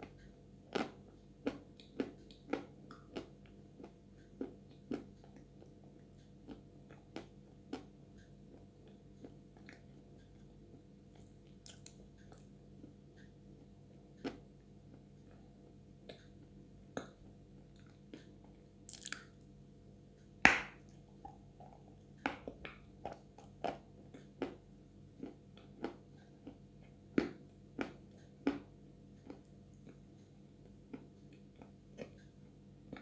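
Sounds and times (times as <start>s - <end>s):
wet mouth clicks and smacks: 11.2s - 12.5s, 18.9s - 19.4s.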